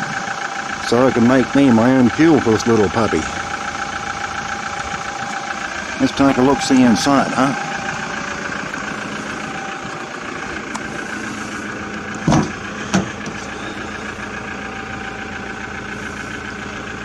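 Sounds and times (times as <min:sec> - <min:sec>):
diesel engine idling: 0:00.0 - 0:17.0
short clunks: 0:02.4 - 0:15.0.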